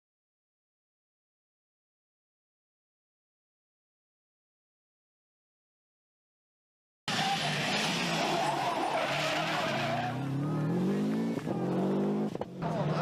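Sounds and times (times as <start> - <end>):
car engine accelerating: 7.1 - 13.0.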